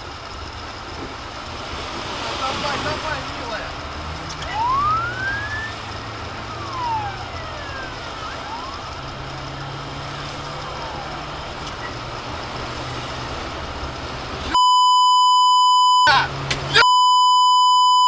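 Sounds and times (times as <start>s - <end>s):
road and engine noise: 0.0s - 18.0s
emergency siren wailing: 3.9s - 18.0s
loud electronic beep: 14.5s - 18.0s.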